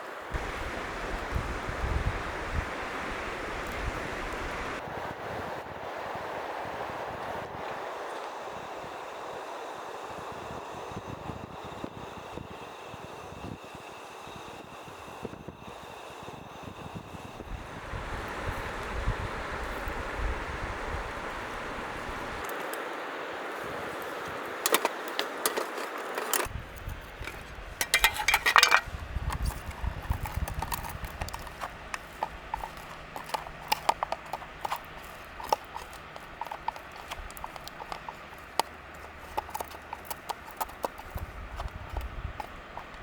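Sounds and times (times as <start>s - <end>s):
river water rushing: 0.0s - 4.8s
wood fire crackling: 21.3s - 43.0s.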